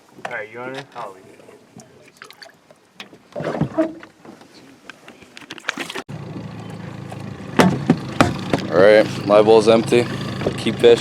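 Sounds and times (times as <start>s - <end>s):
knocks and scrapes in a boat: 3.0s - 6.1s
low motor hum: 6.1s - 11.0s.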